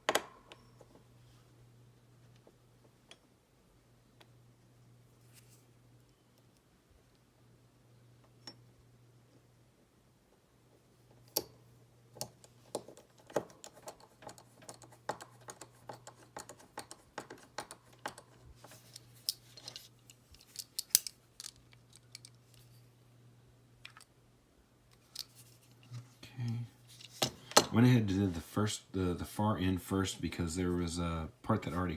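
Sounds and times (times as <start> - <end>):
faint low hum: 0.0 - 31.9
small plastic parts clicking: 12.2 - 22.6.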